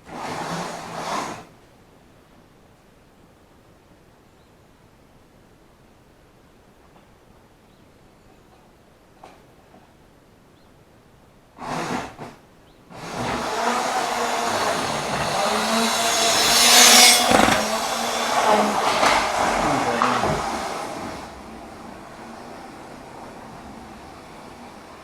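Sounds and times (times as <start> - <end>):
model train motor hum: 12.9 - 25.0
short rattle: 13.0 - 22.2.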